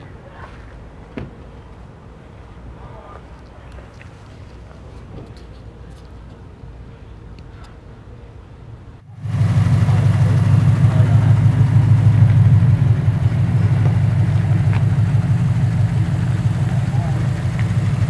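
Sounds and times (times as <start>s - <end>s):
car engine idling: 9.1s - 18.0s.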